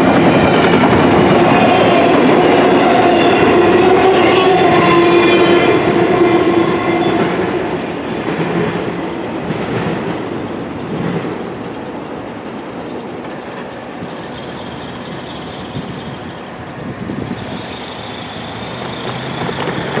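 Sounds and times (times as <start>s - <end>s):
freight train rumble: 0.0s - 20.0s.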